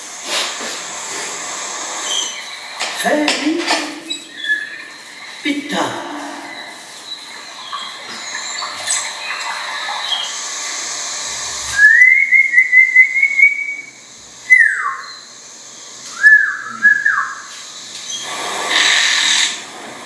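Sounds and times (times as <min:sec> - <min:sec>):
bird whistling calls: 0:02.0 - 0:05.7, 0:06.4 - 0:10.6, 0:11.3 - 0:19.6.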